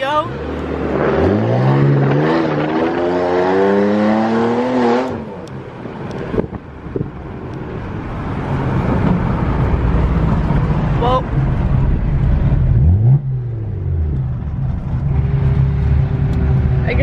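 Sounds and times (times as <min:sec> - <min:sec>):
car accelerating hard: 0:00.3 - 0:05.5
low engine rumble: 0:05.4 - 0:17.0.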